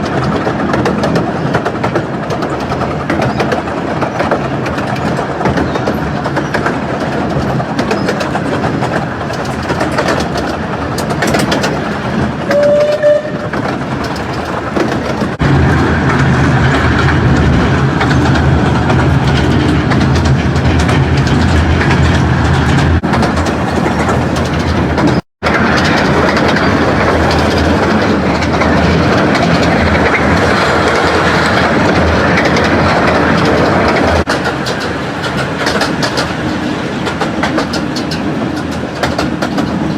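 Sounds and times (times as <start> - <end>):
deep train rumble: 0.0 - 39.9
train wheels clattering over rails: 0.0 - 39.9.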